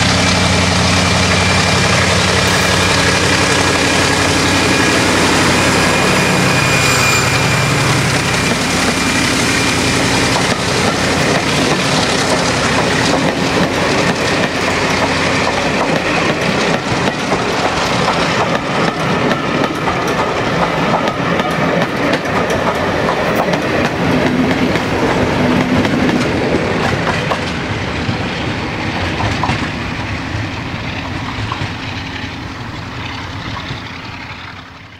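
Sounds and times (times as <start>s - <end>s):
diesel locomotive engine working hard: 0.0s - 34.9s
wheels clattering over rail joints: 9.0s - 28.2s.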